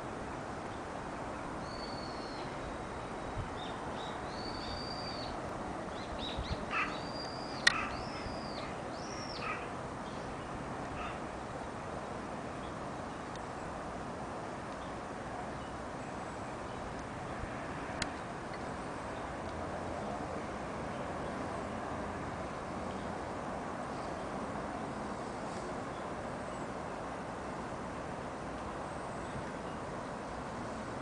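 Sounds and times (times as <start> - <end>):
bird whistled notes: 4.4 - 5.3.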